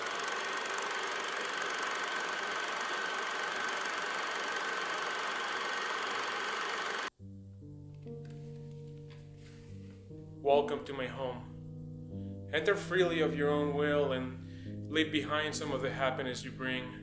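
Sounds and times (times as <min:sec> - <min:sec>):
machine running with high whine: 0:00.0 - 0:07.1
soft sustained musical notes: 0:07.2 - 0:17.0.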